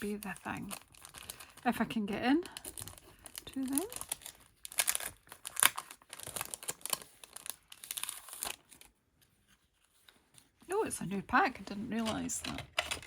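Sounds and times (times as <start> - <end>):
plastic packet crinkling: 0.0 - 8.9.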